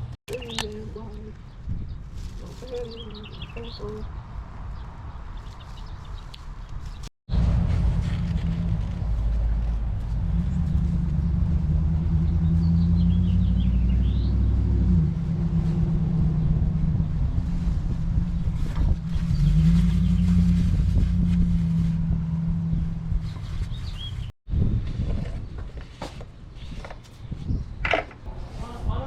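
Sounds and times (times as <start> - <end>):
bird chirping: 0.3 - 2.0, 2.6 - 7.1, 12.2 - 14.5, 23.2 - 24.3
engine humming: 7.3 - 24.3.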